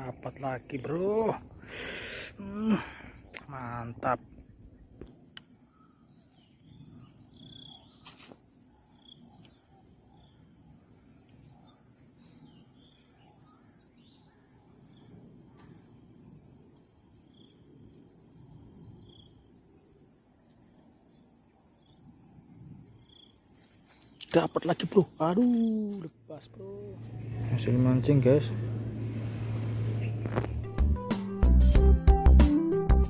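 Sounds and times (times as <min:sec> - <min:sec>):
shrill insect chorus: 0:00.0 - 0:30.5
faint chirps: 0:04.6 - 0:16.3, 0:23.0 - 0:29.0
low steady rush: 0:26.4 - 0:31.1.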